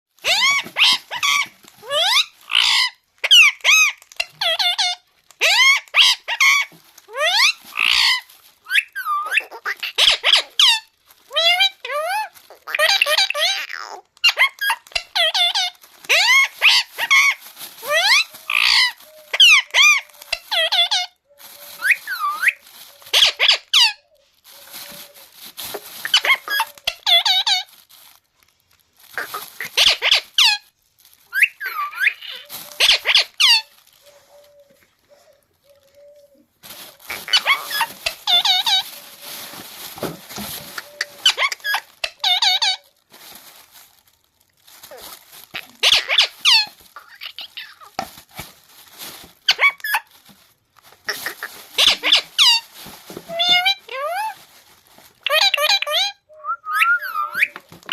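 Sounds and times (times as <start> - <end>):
parrot whistling and chirping: 0.2 - 24.0, 29.2 - 30.6, 31.3 - 34.7, 37.1 - 38.9, 40.7 - 42.8, 45.8 - 47.9, 51.2 - 52.6, 55.2 - 57.9.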